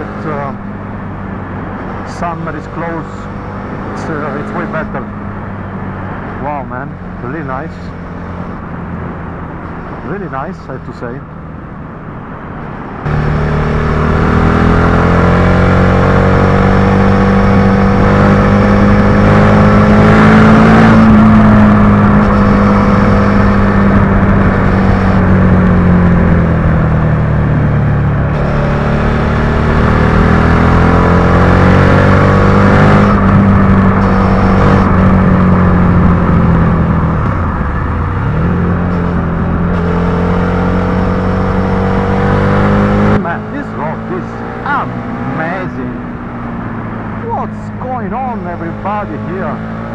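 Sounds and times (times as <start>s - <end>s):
motorcycle engine running: 13.0s - 49.9s.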